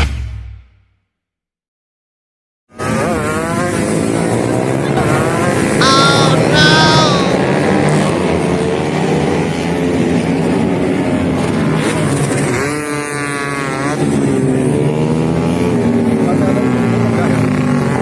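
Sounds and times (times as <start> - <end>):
short high-pitched sounds: 5.8 - 7.4
motorcycle engines revving: 7.3 - 18.0.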